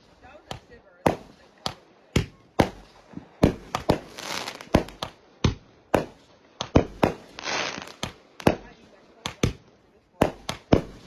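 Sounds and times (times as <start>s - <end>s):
fireworks bangs: 0.0s - 11.0s
fireworks hissing: 2.6s - 5.2s, 6.9s - 8.9s.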